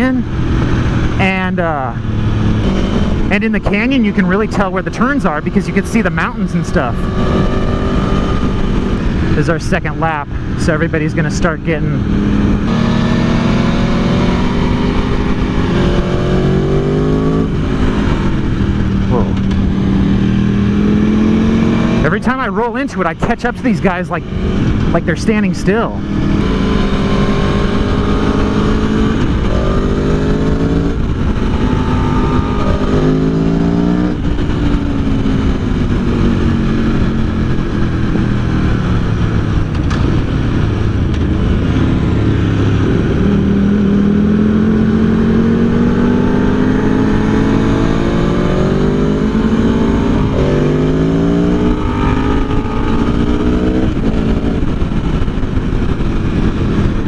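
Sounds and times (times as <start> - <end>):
motorcycle engine accelerating: 0.0 - 57.0
wind rush on microphone: 26.0 - 57.0.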